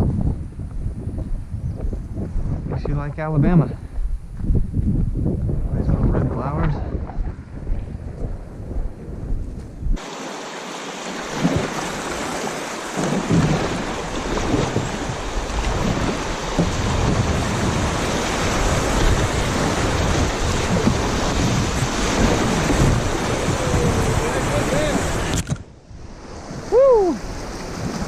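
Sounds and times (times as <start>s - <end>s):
wind buffeting microphone: 0.0s - 10.0s, 11.3s - 28.0s
river water rushing: 10.0s - 25.4s.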